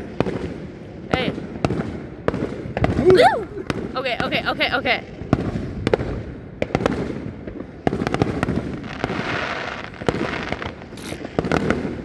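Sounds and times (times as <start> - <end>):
fireworks crackling: 0.0 - 12.0
fireworks bangs: 0.1 - 12.0.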